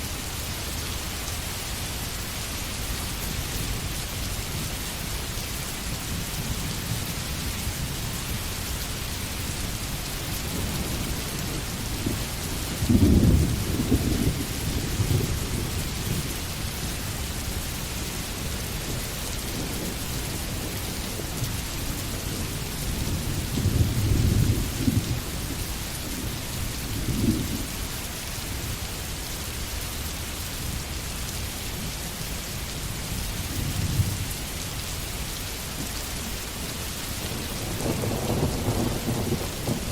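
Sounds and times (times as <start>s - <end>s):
rain hiss: 0.0s - 39.9s
low thunder rumbles: 10.0s - 16.6s, 18.4s - 27.7s, 37.2s - 39.9s.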